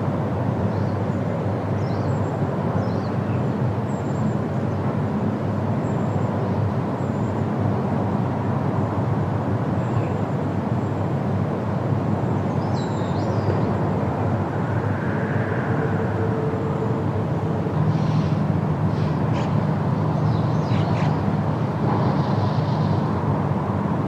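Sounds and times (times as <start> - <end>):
wind through forest leaves: 0.0 - 24.0.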